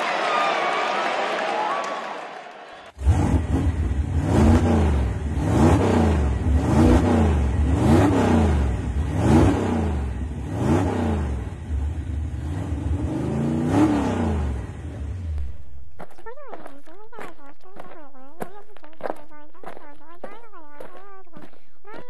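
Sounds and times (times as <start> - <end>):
racing car engine revving: 3.0 - 15.6.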